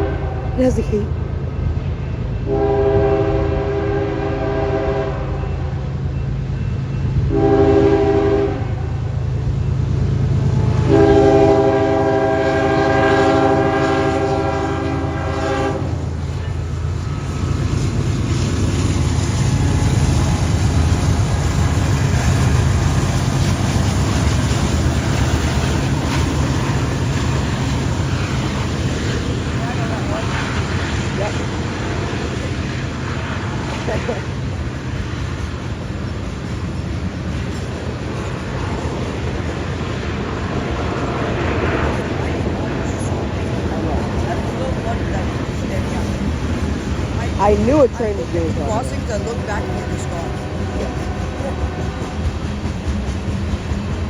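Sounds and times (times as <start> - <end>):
locomotive air horn blasts: 0.0 - 0.6, 2.5 - 5.8, 7.3 - 8.9, 10.7 - 16.0, 49.2 - 52.3
locomotive engine rumble: 0.0 - 54.0
train rolling rumble: 0.0 - 54.0.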